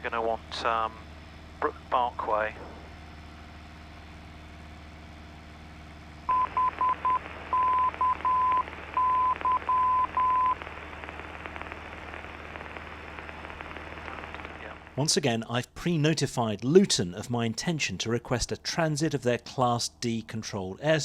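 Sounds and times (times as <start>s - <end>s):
aircraft cabin drone: 0.0s - 15.2s
morse code tone: 6.3s - 10.6s
radio hiss: 6.5s - 15.1s.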